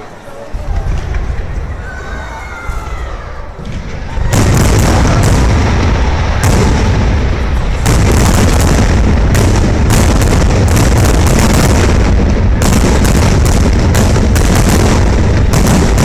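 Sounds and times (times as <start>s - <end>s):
fireworks booms and bangs: 0.5s - 16.0s.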